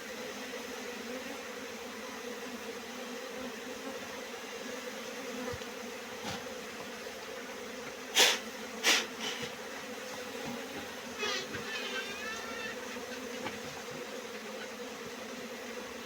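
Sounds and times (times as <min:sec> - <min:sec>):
honeybees buzzing: 0:00.0 - 0:16.0
loud hissy bursts: 0:08.1 - 0:09.5.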